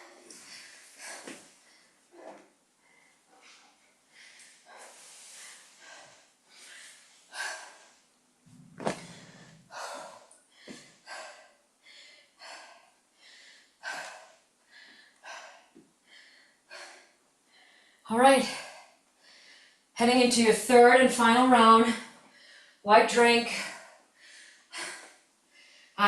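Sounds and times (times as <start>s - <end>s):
person breathing hard: 2.8s - 19.9s, 23.5s - 26.0s.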